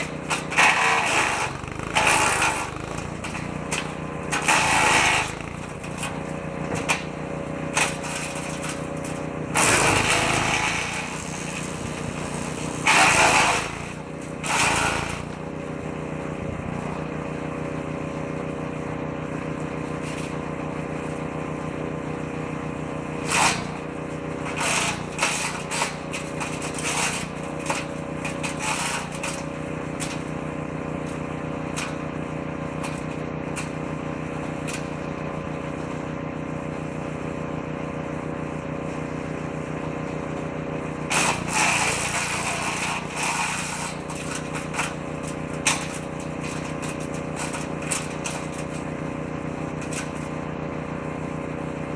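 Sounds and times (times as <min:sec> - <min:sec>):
wood cracking in shredder drum: 0:00.0 - 0:15.5, 0:23.3 - 0:36.0, 0:40.0 - 0:50.7
woodchipper engine running: 0:00.0 - 0:51.9
branches being chipped: 0:00.4 - 0:06.0, 0:09.6 - 0:15.4.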